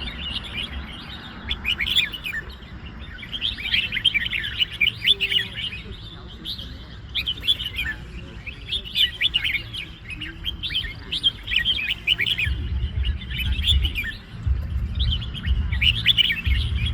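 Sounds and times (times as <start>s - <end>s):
bulbuls chirping: 0.0s - 16.9s
low rumble: 12.4s - 16.9s.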